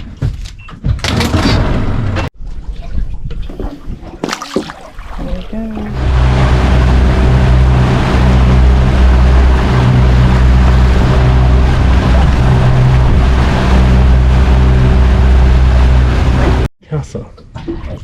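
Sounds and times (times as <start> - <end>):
rush of wind and water: 2.7 - 16.7
motorboat engine drone: 5.4 - 16.7.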